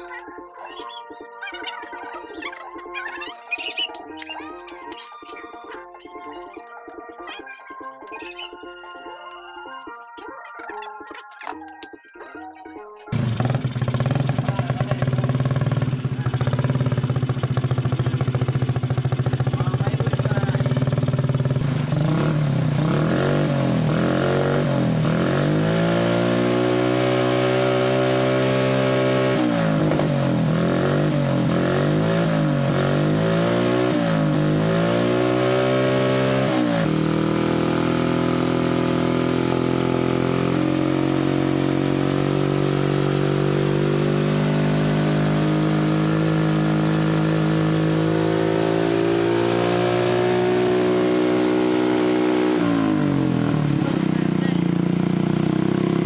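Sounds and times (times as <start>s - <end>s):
motorcycle engine revving: 13.1s - 56.0s.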